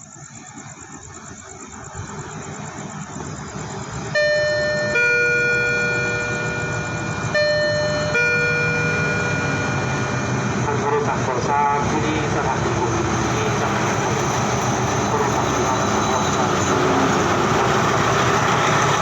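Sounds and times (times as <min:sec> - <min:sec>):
diesel train rumbling: 0:00.0 - 0:19.0
two-tone train horn: 0:04.2 - 0:12.0.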